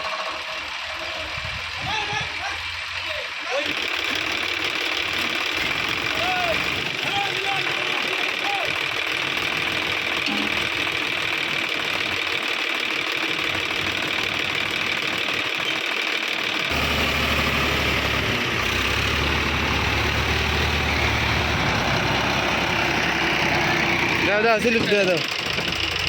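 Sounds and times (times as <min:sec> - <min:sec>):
tractor diesel engine running: 0:00.0 - 0:26.0
deep low engine note: 0:16.7 - 0:25.0.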